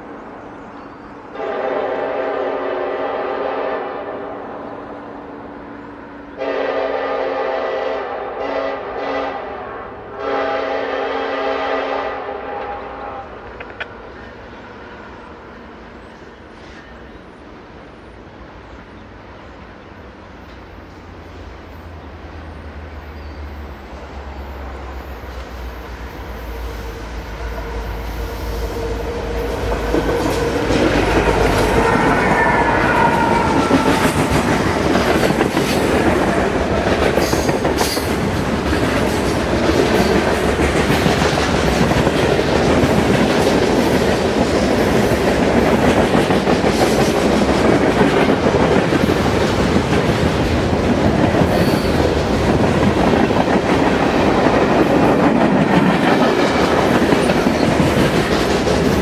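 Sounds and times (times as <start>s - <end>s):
train engine rumble: 0.0s - 59.0s
train wheels clattering: 28.6s - 59.0s.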